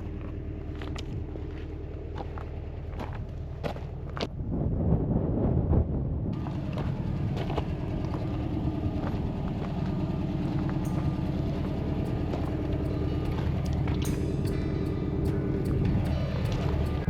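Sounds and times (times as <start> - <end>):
bus engine running: 6.4 - 17.0
sharp clicks and rattles: 10.8 - 17.0.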